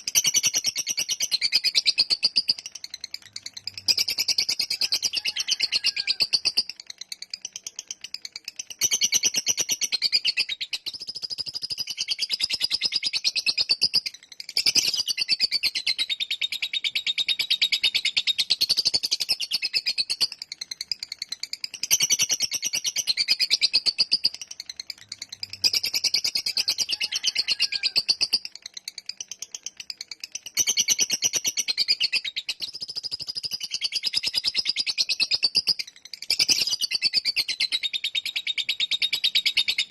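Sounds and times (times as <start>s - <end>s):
lovebird chattering: 0.0s - 39.9s.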